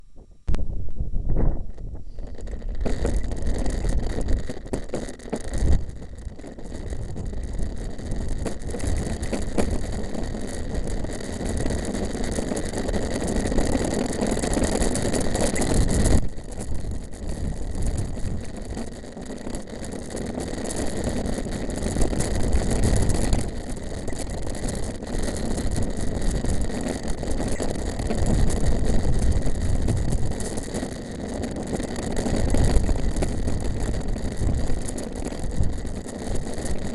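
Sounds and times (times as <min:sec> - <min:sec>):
wind buffeting microphone: 0:00.2 - 0:04.8, 0:05.5 - 0:11.8, 0:15.6 - 0:18.9, 0:21.1 - 0:30.7, 0:32.3 - 0:36.9
bike tyres rumbling on gravel: 0:00.6 - 0:36.9
bike rattling: 0:01.4 - 0:36.9.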